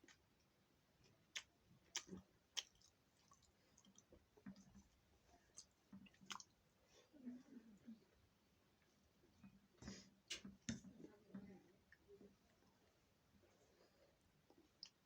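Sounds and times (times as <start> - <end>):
faint clicks and light taps: 1.4 - 6.6, 8.8 - 13.0.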